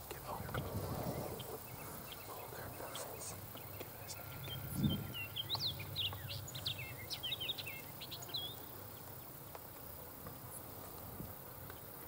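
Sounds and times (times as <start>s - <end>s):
low background noise: 0.0s - 12.0s
songbird chirping and whistling: 1.2s - 8.6s.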